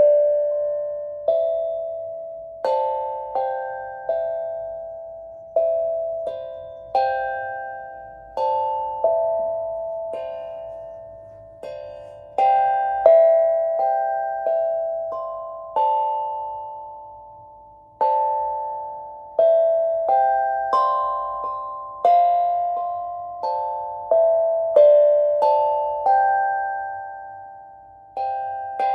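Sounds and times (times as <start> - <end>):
slow melody of ringing notes: 0.0 - 28.9.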